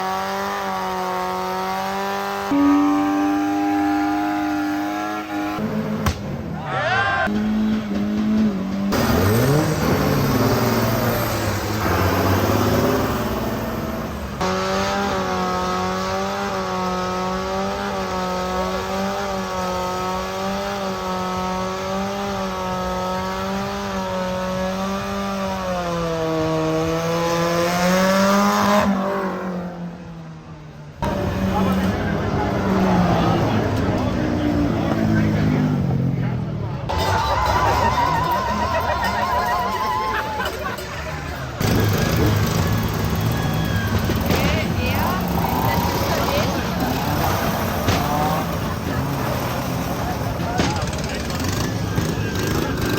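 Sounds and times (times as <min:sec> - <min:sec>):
car engine revving: 0:00.0 - 0:52.9
tyre squeal: 0:36.9 - 0:49.4.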